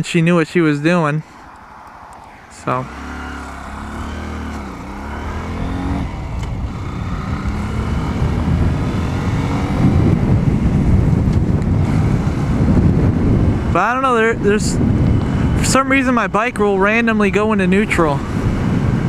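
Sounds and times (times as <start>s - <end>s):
motorcycle engine revving: 2.0s - 16.0s.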